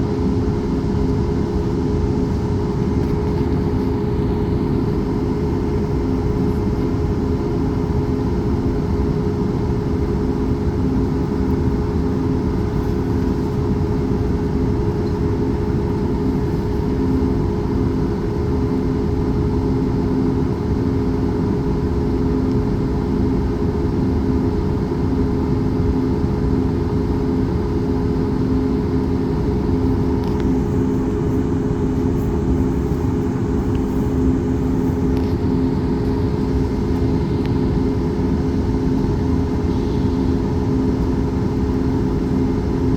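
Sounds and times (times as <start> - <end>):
airplane engines droning: 0.0 - 42.9.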